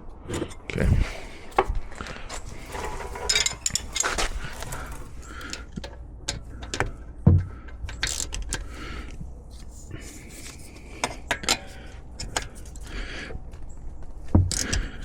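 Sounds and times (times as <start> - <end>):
metal hand tools clinking: 2.3 - 5.9.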